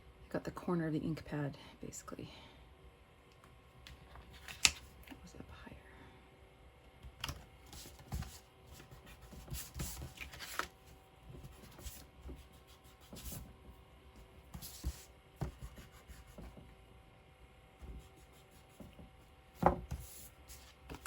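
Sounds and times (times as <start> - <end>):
paper rustling: 7.7 - 12.0.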